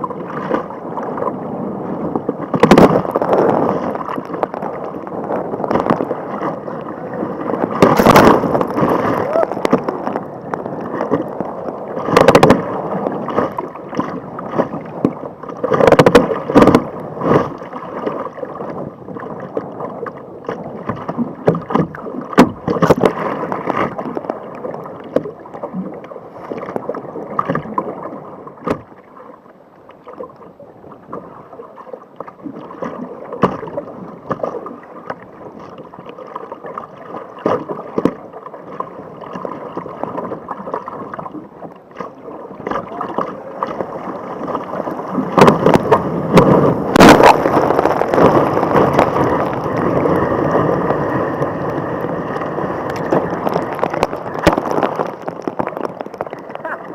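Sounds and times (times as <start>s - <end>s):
water splashing around kayak: 0.0s - 56.9s.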